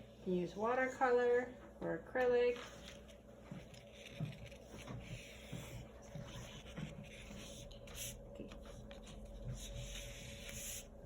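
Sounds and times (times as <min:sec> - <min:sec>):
paintbrush strokes on paper: 0:02.6 - 0:11.0.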